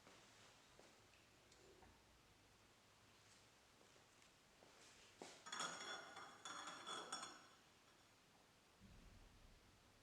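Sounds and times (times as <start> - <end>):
glass clinking: 5.4 - 7.6.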